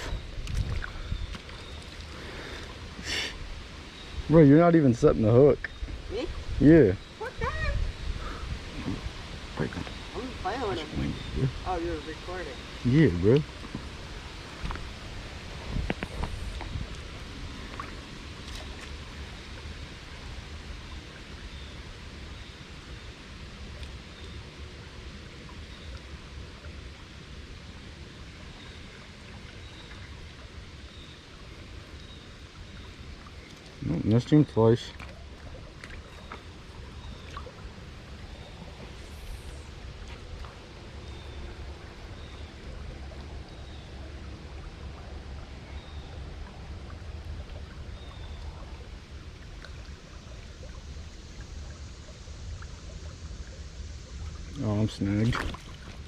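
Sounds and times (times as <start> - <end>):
creek water rushing: 0.0 - 56.0
low rumble: 4.2 - 23.1
faint ticks: 23.8 - 24.4.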